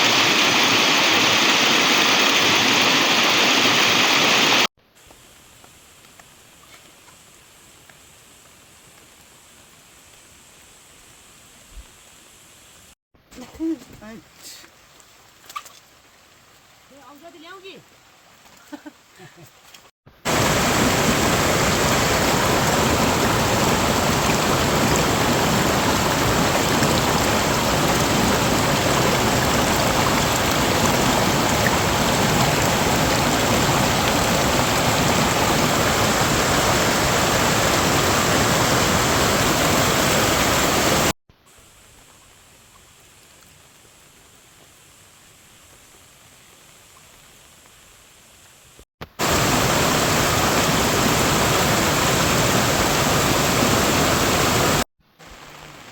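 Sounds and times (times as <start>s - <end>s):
water rushing: 0.0s - 4.7s, 20.2s - 41.2s, 49.2s - 55.9s.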